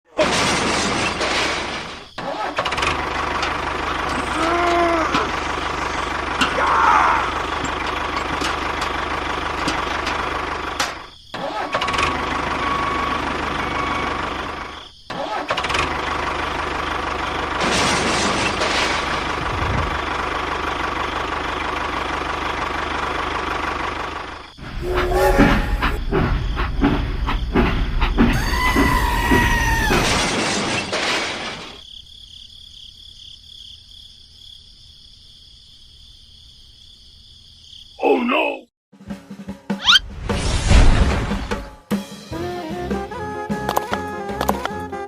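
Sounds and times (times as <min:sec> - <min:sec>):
vehicle engine running: 0:02.9 - 0:11.1, 0:15.7 - 0:17.6, 0:19.0 - 0:28.3.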